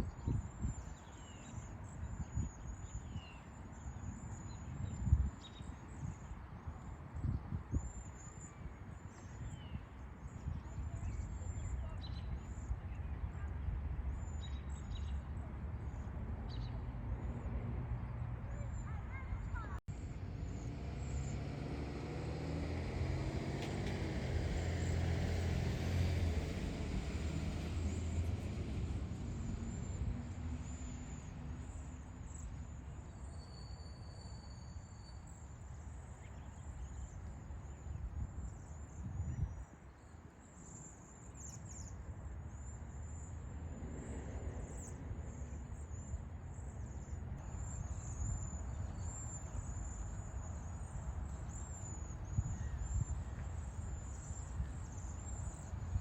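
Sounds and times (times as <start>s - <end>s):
wind rumble on microphone: 0.0s - 33.3s, 34.7s - 40.0s, 41.4s - 56.0s
motor vehicle passing: 16.4s - 32.2s, 43.5s - 46.1s.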